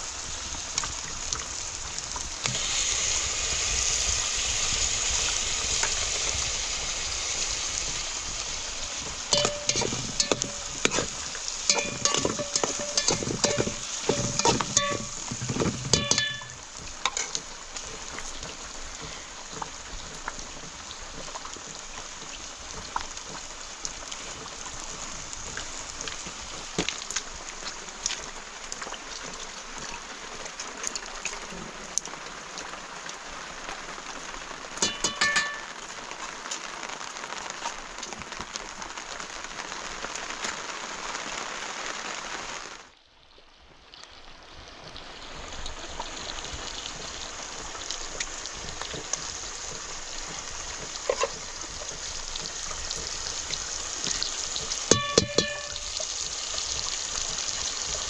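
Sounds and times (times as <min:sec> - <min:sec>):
steady hiss: 0:00.0 - 0:42.9, 0:44.9 - 0:58.0
ringing metal clinks and knocks: 0:09.4 - 0:11.0, 0:11.7 - 0:17.3, 0:34.8 - 0:35.7, 0:54.9 - 0:56.0.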